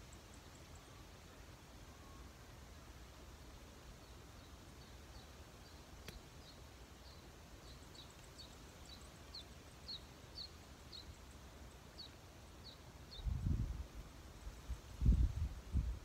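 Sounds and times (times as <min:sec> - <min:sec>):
faint low wind rumble: 0:00.0 - 0:16.0
small bird chirping: 0:03.9 - 0:13.4
faint click: 0:06.0 - 0:06.3.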